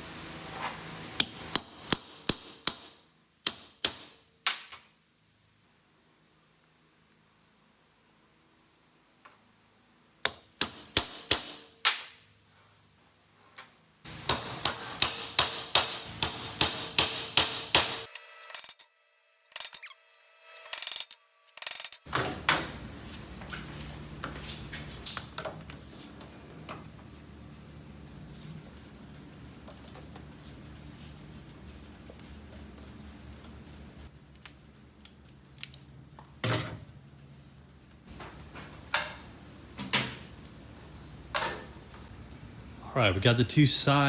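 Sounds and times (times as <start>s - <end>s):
hammer strikes: 1.2s - 4.2s, 10.3s - 11.7s, 14.1s - 22.1s.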